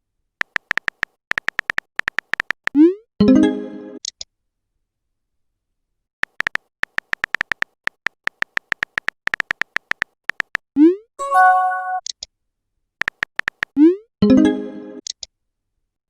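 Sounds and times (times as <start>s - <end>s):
short notification chime: 11.2s - 12.0s.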